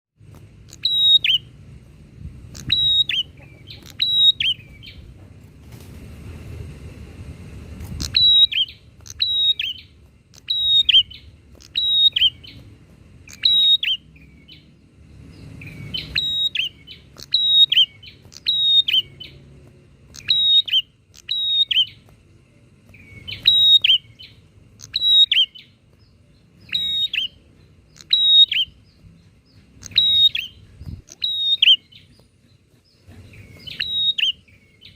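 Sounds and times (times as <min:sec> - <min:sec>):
hiss of noise: 0:03.8 - 0:14.2
bird sharp descending calls: 0:33.2 - 0:34.6.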